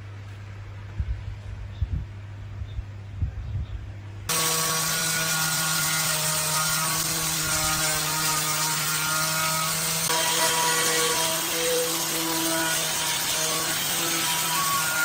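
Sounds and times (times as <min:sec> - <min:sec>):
power tool hissing whine: 0:04.3 - 0:15.0.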